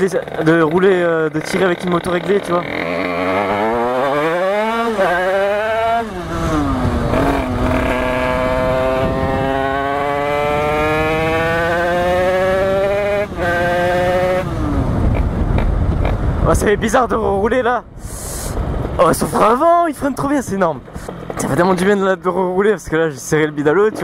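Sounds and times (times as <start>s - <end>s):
two-stroke engine accelerating hard: 0.0s - 16.4s.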